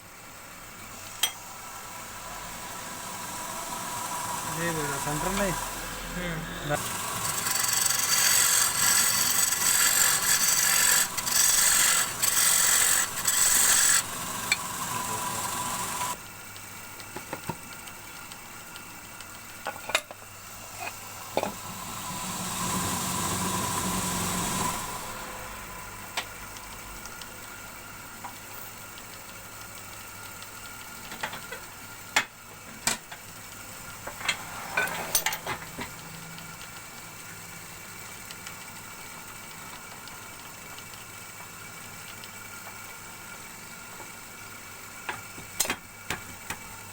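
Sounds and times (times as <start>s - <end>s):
lathe motor humming: 1.5s - 16.2s, 21.5s - 26.2s
lathe tool cutting wood shavings: 1.6s - 16.2s, 21.6s - 25.5s.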